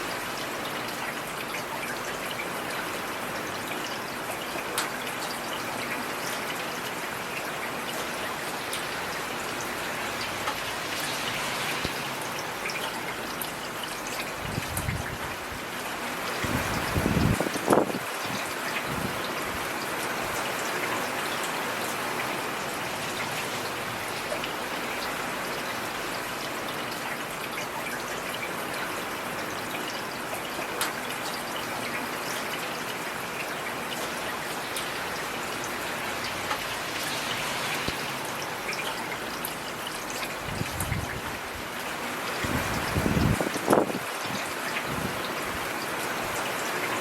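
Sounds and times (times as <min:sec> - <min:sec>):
heavy rain hiss: 0:08.6 - 0:27.4, 0:34.6 - 0:47.0.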